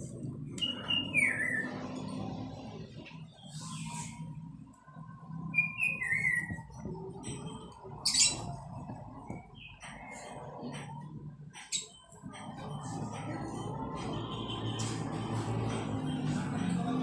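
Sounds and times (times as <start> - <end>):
small bird chirping: 5.4 - 10.2.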